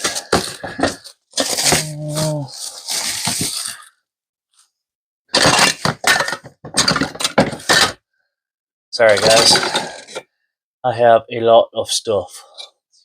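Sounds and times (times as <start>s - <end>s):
tools clattering and clinking: 5.4s - 8.0s, 9.0s - 10.2s.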